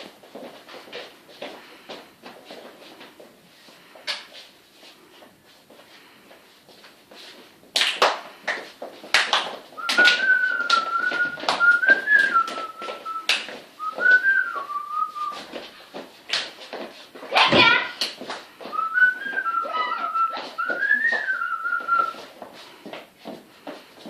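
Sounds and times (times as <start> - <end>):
person whistling: 9.8 - 15.5, 18.7 - 22.2.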